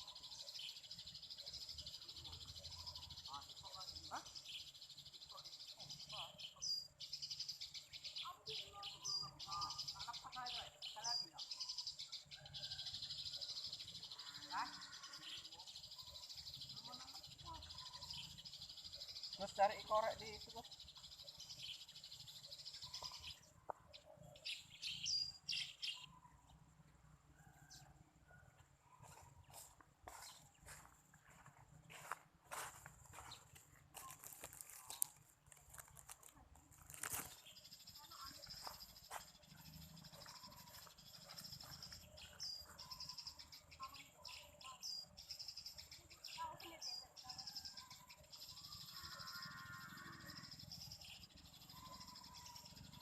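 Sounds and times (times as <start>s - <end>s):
sparrows chirping: 0.0s - 53.0s
high insect trill: 48.6s - 53.0s.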